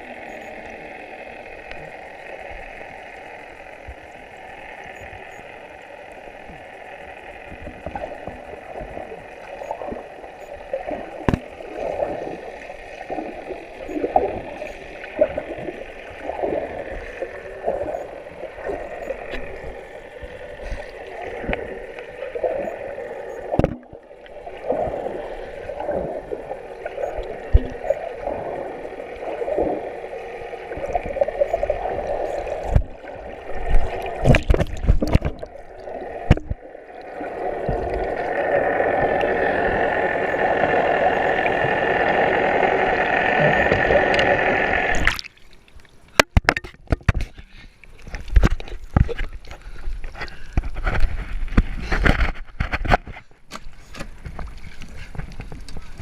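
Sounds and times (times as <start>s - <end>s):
motorboat engine drone: 0.0s - 45.1s
rushing water: 0.0s - 56.0s
clicks and knocks: 46.1s - 47.4s.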